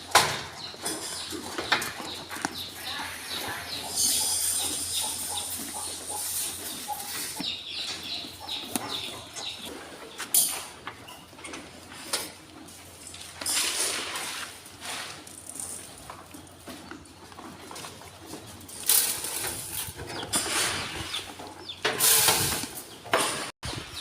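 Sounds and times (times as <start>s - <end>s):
birds chirping: 0.0s - 11.9s, 16.3s - 21.9s.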